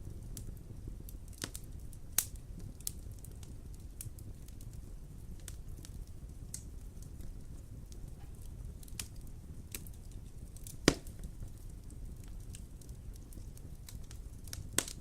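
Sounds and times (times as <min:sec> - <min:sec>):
wood fire crackling: 0:00.0 - 0:15.0
loud fire pop: 0:10.8 - 0:11.3.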